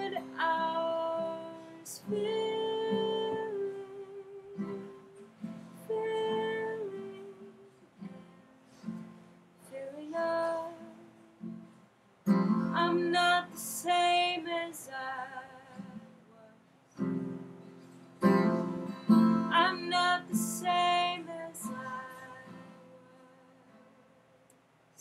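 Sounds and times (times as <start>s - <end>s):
person singing: 0.0s - 7.8s, 19.0s - 23.6s
acoustic guitar strummed: 0.0s - 9.7s, 10.4s - 16.1s, 16.9s - 24.0s.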